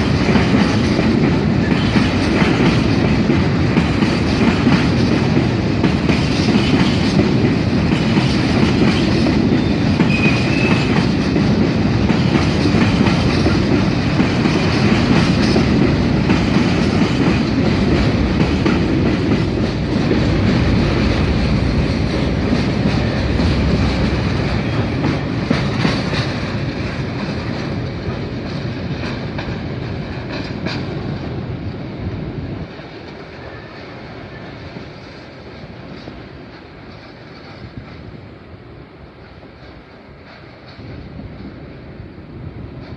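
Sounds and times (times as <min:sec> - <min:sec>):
train wheels rattling: 0:00.0 - 0:38.4, 0:39.1 - 0:42.9
train wheel squeal: 0:08.9 - 0:11.3, 0:33.0 - 0:38.2.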